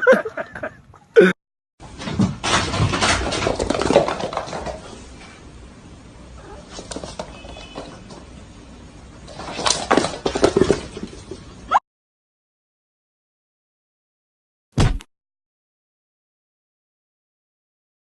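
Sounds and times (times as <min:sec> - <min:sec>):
pet animal moving about: 0:06.5 - 0:08.3, 0:09.2 - 0:11.6.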